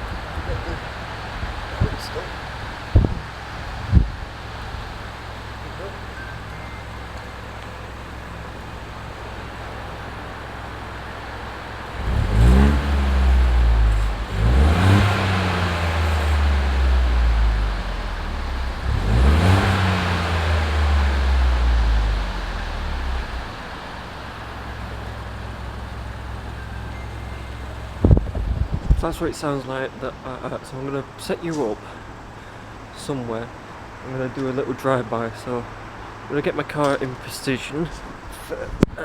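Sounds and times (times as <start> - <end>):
car engine idling and revving: 0.0 - 29.1.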